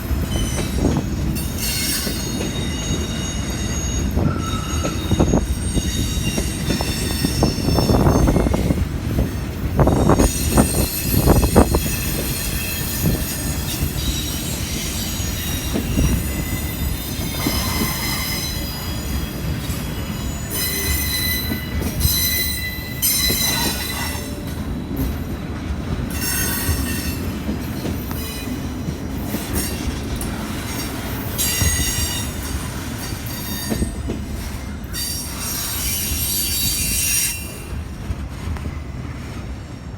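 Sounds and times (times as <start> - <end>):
freight train cars rolling: 0.0 - 39.9
wheel squeal: 0.3 - 8.8, 9.8 - 24.5.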